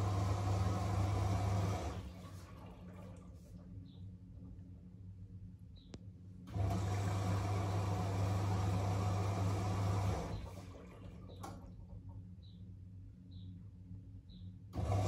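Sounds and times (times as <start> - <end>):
water rushing into washing machine: 0.0 - 3.7, 6.5 - 12.0, 14.8 - 15.0.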